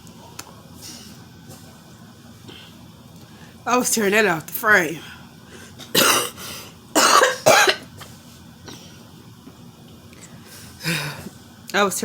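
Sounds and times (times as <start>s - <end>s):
woman coughing: 5.9s - 6.4s, 7.0s - 7.9s.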